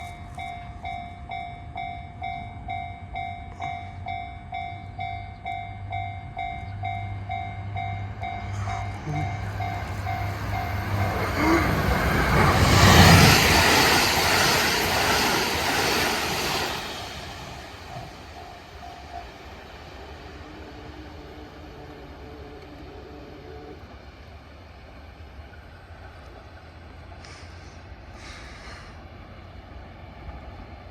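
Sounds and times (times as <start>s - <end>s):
level-crossing bell ringing: 0.0s - 12.5s
diesel train passing: 0.0s - 30.9s.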